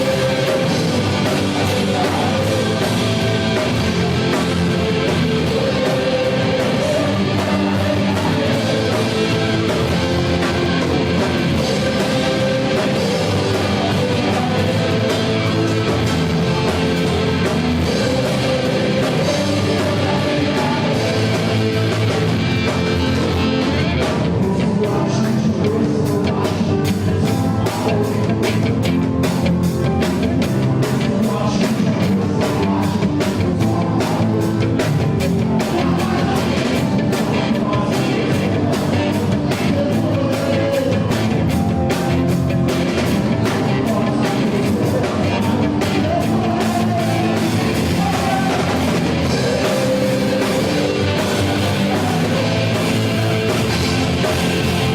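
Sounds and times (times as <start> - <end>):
person singing: 0.0 - 28.9, 30.6 - 54.9
drum kit: 0.0 - 54.9
electric guitars: 0.0 - 54.9.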